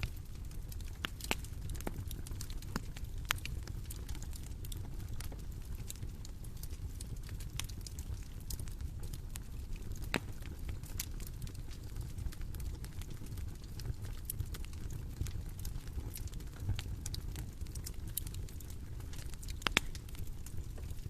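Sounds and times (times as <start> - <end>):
bonfire rumbling: 0.0 - 21.0
fire crackling pops: 0.0 - 21.0.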